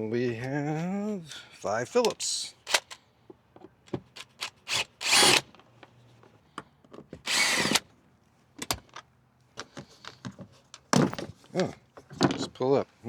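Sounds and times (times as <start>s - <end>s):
cordless drill running: 4.2s - 5.4s, 7.3s - 7.8s.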